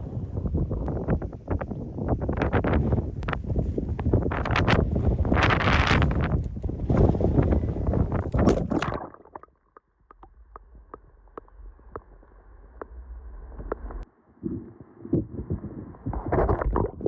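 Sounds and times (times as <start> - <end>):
wind gusting on microphone: 0.0 - 8.9
low rumble: 10.2 - 17.0.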